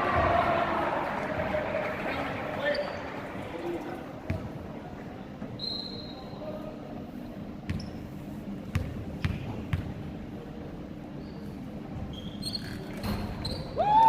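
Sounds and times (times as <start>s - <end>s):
basketball bouncing on gym floor: 8.7s - 9.9s.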